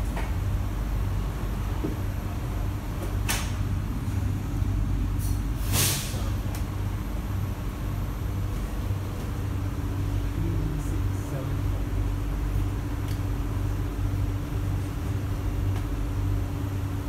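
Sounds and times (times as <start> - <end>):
train equipment humming: 0.0 - 17.0
short air hiss: 5.2 - 6.4.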